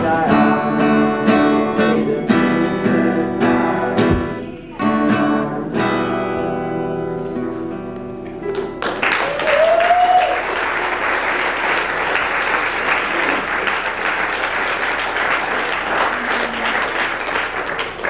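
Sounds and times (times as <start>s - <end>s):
audience applauding: 8.2s - 18.0s
rising shout: 8.4s - 10.6s.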